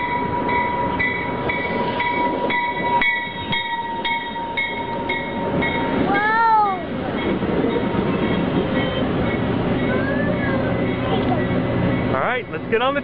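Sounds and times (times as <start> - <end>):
train high-pitched squeal: 0.0 - 6.0, 7.6 - 11.7
train bell ringing: 0.0 - 13.0
child squealing: 6.1 - 6.9.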